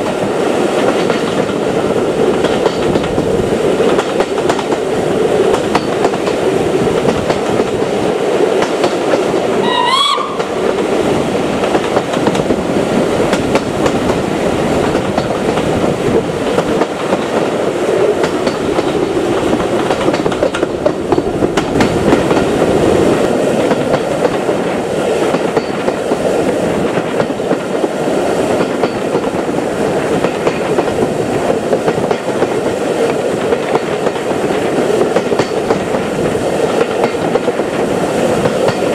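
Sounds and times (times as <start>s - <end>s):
train wheels clickety-clack: 0.0s - 38.9s
brief rising whistle: 9.6s - 10.4s.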